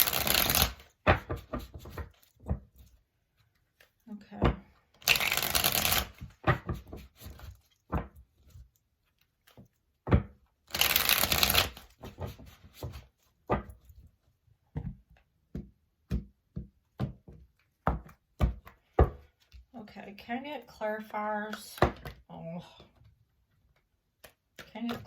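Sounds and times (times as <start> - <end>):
cards shuffling: 0.0 - 2.3, 5.0 - 7.7, 10.7 - 13.3.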